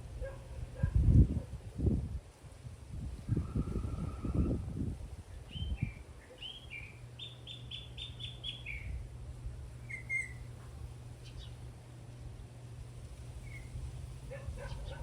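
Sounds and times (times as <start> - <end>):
steady low hum: 0.0 - 15.0
bird singing: 5.5 - 9.0, 9.8 - 10.5, 11.2 - 11.6, 13.4 - 13.8.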